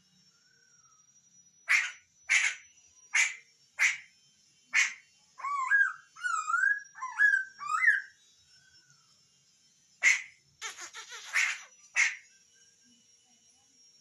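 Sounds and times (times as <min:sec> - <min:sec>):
bird harsh calls: 0:01.7 - 0:02.6, 0:03.2 - 0:04.1, 0:10.0 - 0:12.2
bird warbling whistles: 0:01.7 - 0:02.6, 0:04.8 - 0:08.2, 0:10.0 - 0:12.2.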